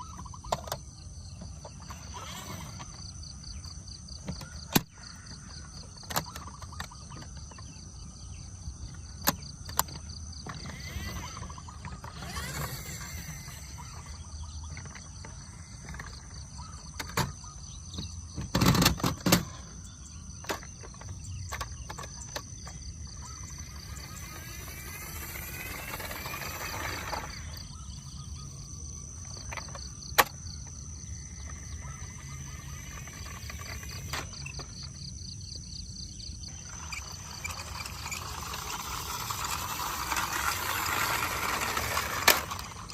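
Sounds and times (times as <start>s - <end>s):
high insect drone: 0.0s - 42.9s
clatter: 36.6s - 42.9s.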